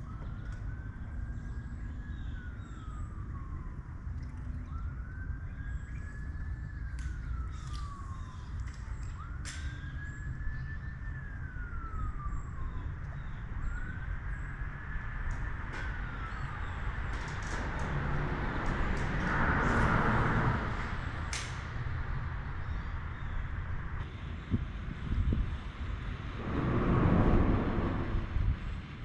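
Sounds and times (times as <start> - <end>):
emergency vehicle siren wailing: 0.0 - 23.3
steady low rumble: 16.7 - 29.0.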